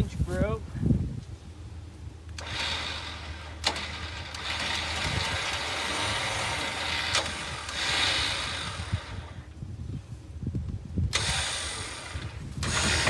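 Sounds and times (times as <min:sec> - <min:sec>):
engine idling: 0:01.8 - 0:09.8, 0:11.1 - 0:13.0.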